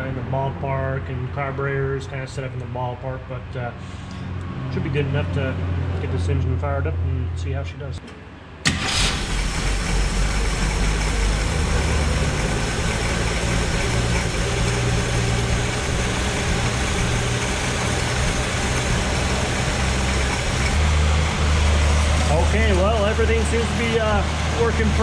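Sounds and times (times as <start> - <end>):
engine idling: 8.6 - 25.0.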